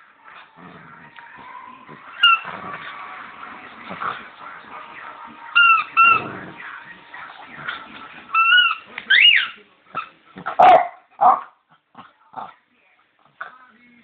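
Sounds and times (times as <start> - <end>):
rubber toy squeaking: 2.1 - 2.5, 5.6 - 6.3, 8.3 - 10.1.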